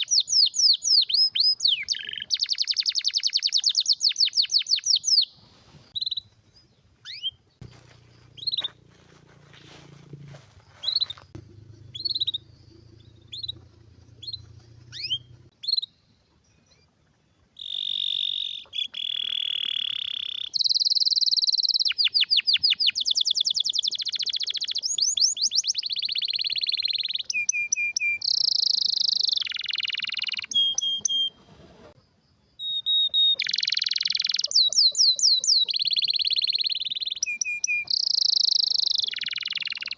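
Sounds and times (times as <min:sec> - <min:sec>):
canary chirping and singing: 0:07.0 - 0:15.9.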